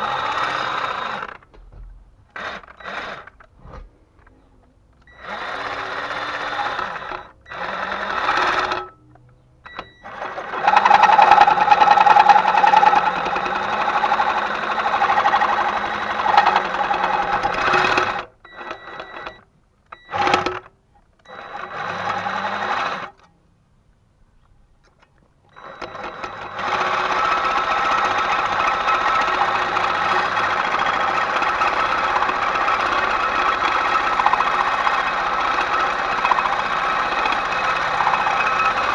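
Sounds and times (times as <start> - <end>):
electric power tool running: 0.0 - 1.5, 2.4 - 3.4, 5.1 - 8.9, 10.0 - 19.4, 21.3 - 23.2, 25.6 - 38.9.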